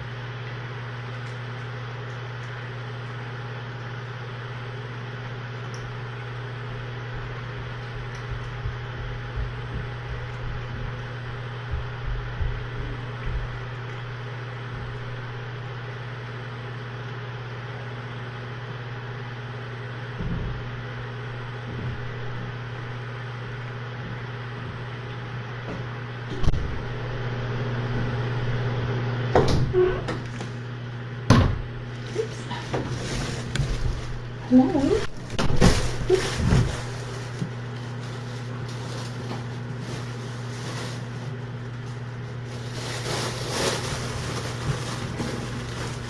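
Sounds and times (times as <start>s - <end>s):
low room hum: 0.0s - 46.0s.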